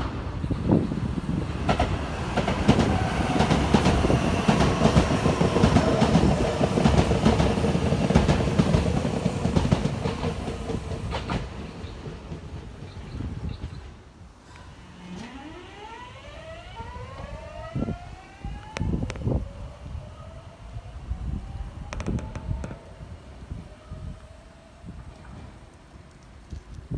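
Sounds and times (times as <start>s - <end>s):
train wheels clattering over rail joints: 0.0s - 15.3s.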